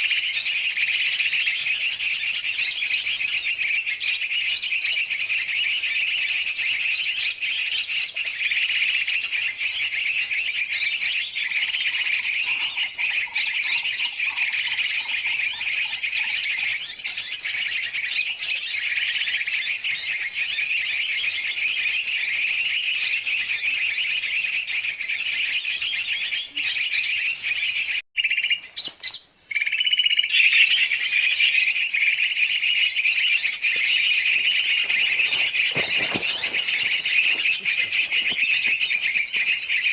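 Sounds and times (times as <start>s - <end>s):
chorus of birds chirping: 0.0s - 39.9s.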